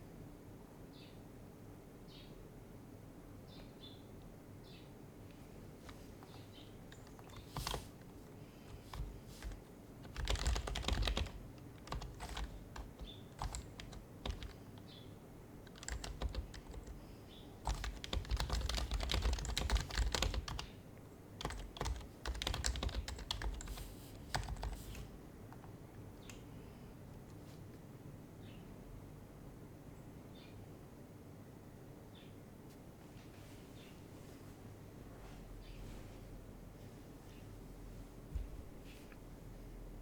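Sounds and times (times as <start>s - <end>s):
keyboard typing: 5.8s - 14.9s, 15.6s - 17.0s, 17.6s - 20.7s, 21.4s - 25.8s.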